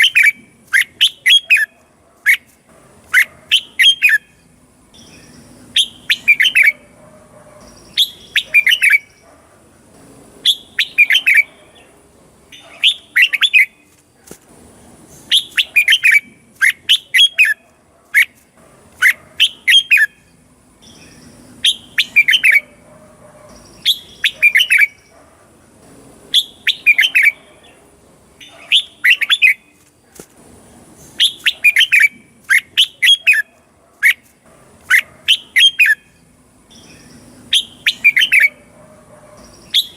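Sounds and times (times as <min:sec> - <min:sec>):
bird singing whistled notes: 0:00.0 - 0:02.5, 0:03.2 - 0:06.8, 0:07.6 - 0:09.2, 0:10.4 - 0:11.6, 0:15.2 - 0:17.6, 0:19.0 - 0:22.7, 0:23.5 - 0:25.1, 0:26.3 - 0:27.4, 0:28.4 - 0:29.7, 0:31.2 - 0:34.2, 0:34.9 - 0:38.7, 0:39.4 - 0:39.9.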